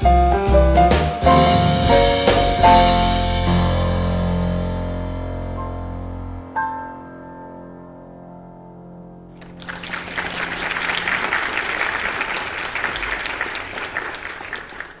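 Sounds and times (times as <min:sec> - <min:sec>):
piano chord: 0:00.0 - 0:11.0
audience applauding: 0:09.4 - 0:15.0.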